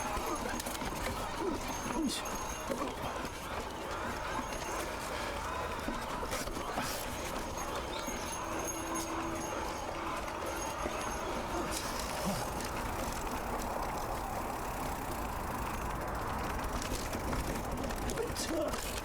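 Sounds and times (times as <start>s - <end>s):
bike rattling and ticking: 0.0s - 19.0s
bike tyres on dirt: 9.4s - 19.0s.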